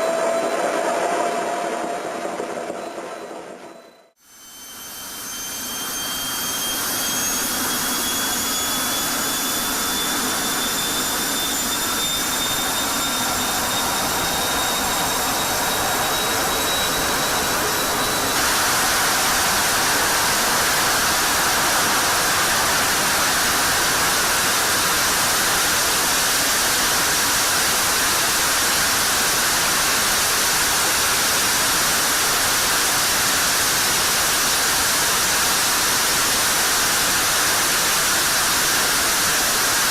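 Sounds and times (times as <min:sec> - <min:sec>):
steady rushing noise: 0:00.0 - 0:03.8, 0:11.0 - 0:27.0
jet engine whine: 0:00.0 - 0:39.9.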